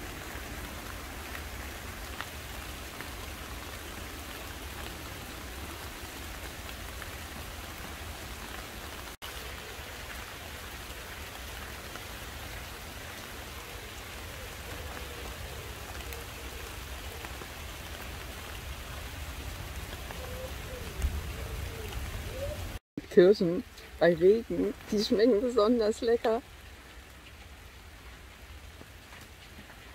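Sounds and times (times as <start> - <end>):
rain pattering on leaves: 0.0 - 29.9.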